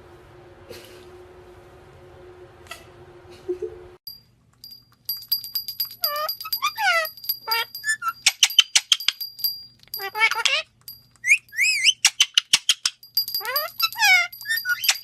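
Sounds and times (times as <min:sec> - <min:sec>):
parrot squawking: 0:06.0 - 0:09.0, 0:10.0 - 0:15.0.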